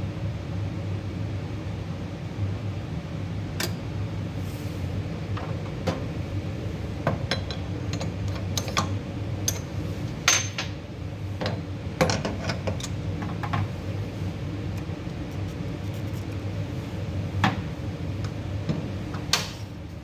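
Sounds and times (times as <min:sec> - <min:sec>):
steady low hum: 0:00.0 - 0:20.0
metal parts clicking and clinking: 0:07.3 - 0:10.8.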